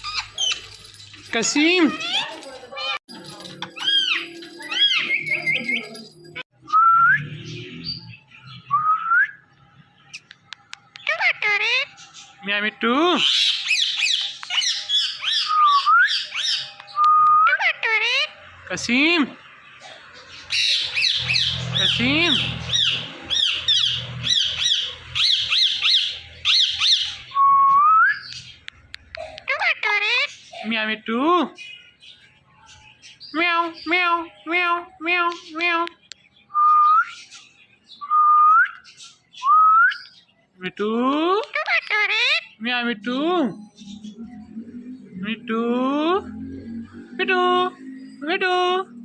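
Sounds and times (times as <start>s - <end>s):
parrot chirping: 0.0s - 6.4s, 10.1s - 27.4s, 28.1s - 32.3s, 41.3s - 46.2s.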